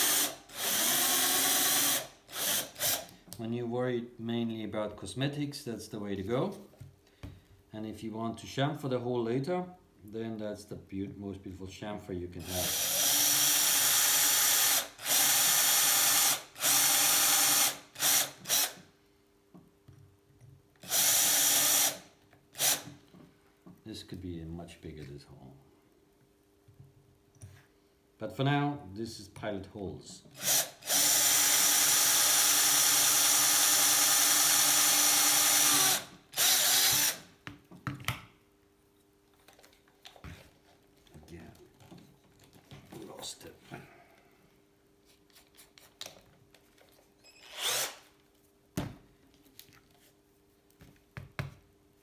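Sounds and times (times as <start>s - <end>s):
electric drill boring holes: 0.0s - 3.1s, 12.5s - 18.8s, 20.8s - 22.0s, 22.6s - 22.9s, 30.4s - 37.2s, 47.4s - 48.1s.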